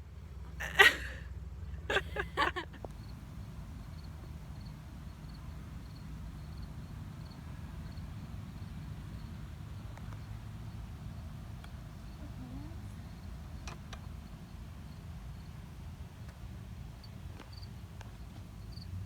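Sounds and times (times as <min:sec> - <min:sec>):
honeybees buzzing: 0:02.0 - 0:14.2.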